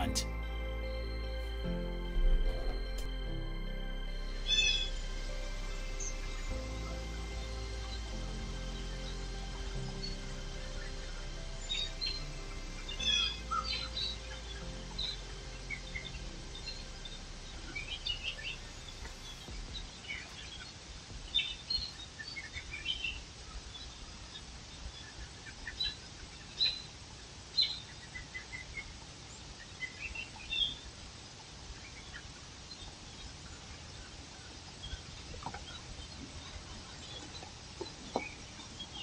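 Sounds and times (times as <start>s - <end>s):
steady background hiss: 0.0s - 39.0s
small birds chirping: 12.8s - 31.0s, 31.6s - 39.0s.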